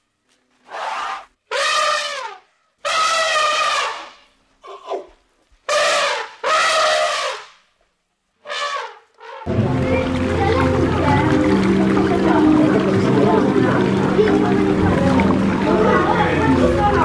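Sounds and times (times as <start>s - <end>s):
animal giving harsh calls: 0.7s - 5.1s, 5.7s - 7.6s, 8.4s - 9.5s.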